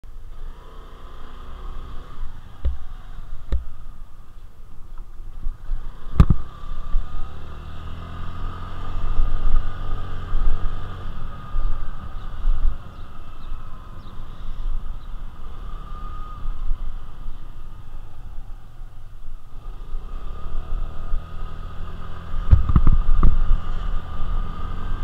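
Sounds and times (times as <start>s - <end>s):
road and wind noise: 0.0s - 25.0s
motorbike engine running: 19.5s - 25.0s.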